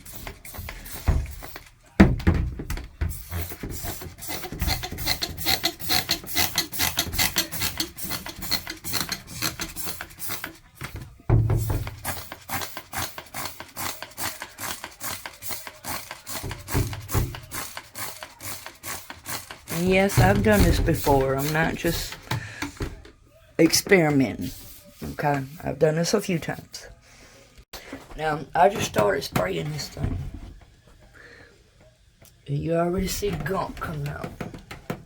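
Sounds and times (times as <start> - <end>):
trigger sprayer hissing: 11.7 - 22.2.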